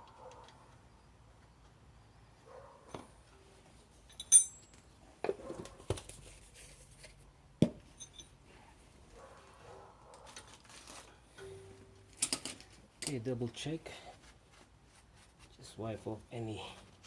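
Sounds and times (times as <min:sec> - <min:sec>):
metal tools clinking and clattering: 0:04.0 - 0:04.8, 0:07.9 - 0:08.4.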